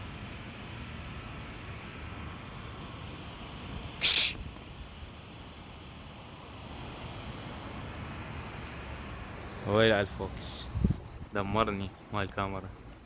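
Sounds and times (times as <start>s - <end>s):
loud hiss-like burst: 3.8s - 4.5s.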